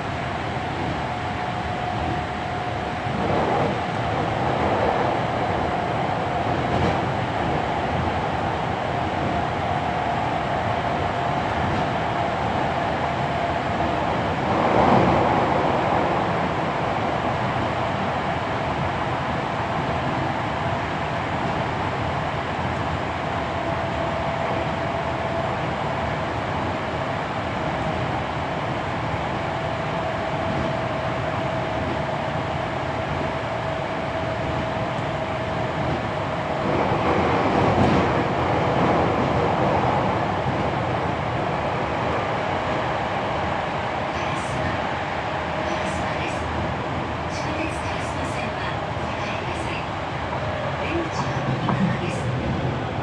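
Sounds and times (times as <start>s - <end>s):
wheels rumbling on rail: 0.0s - 53.0s.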